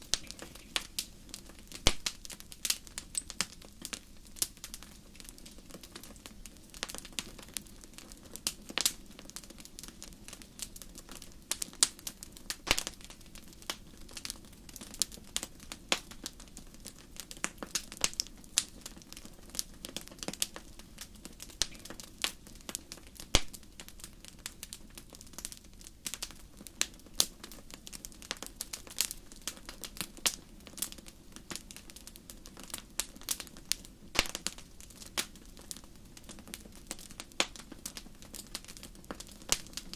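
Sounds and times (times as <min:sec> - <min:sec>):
low hiss of burning: 0:00.0 - 0:39.9
wood fire crackling: 0:00.0 - 0:39.9.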